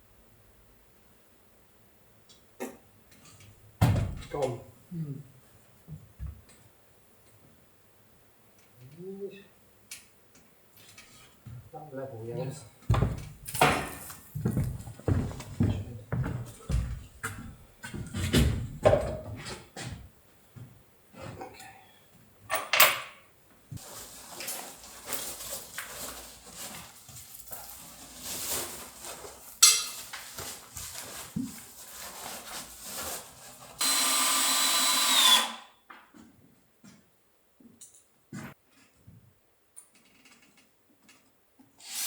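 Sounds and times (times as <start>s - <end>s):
hand tools knocking and scraping: 29.6s - 31.6s
power drill running: 33.8s - 35.6s.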